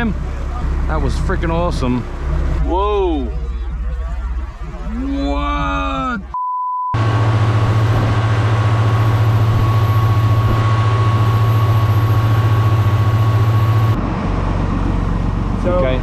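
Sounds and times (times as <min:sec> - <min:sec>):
boat engine droning: 0:00.0 - 0:06.4, 0:07.0 - 0:16.0
faint steady whine: 0:00.0 - 0:06.4, 0:07.0 - 0:14.0.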